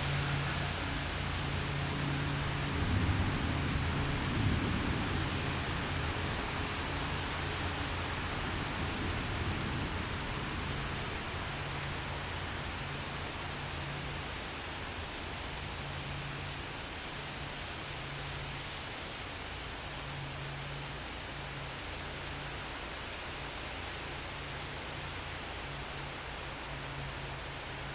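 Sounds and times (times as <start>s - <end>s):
gusty wind: 0.0s - 15.7s
steady rain: 0.0s - 27.9s
thunder rumble: 0.6s - 11.5s.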